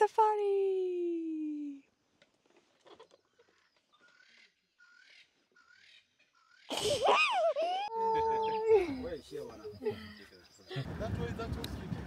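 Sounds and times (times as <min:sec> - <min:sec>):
faint bird calls: 0:02.7 - 0:10.9.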